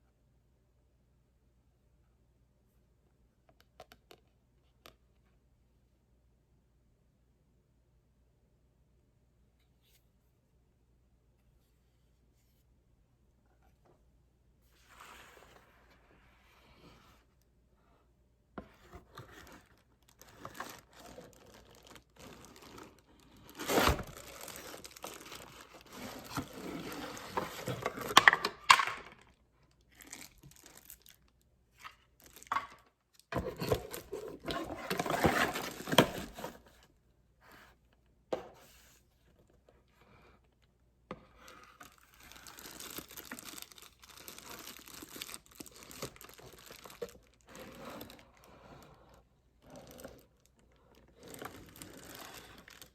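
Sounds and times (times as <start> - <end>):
packaging crinkling and tearing: 19.1 - 29.2, 29.8 - 36.6, 41.6 - 48.4, 51.2 - 52.9.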